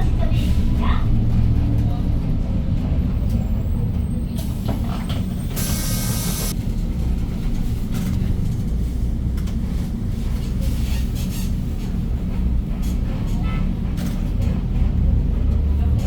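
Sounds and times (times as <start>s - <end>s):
bus engine rumbling: 0.0s - 16.0s
compressed air hiss: 5.6s - 6.5s.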